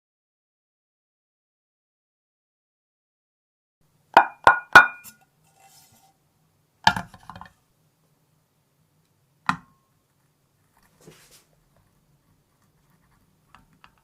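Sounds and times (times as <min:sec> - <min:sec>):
sharp taps with short ring: 0:04.2 - 0:05.1.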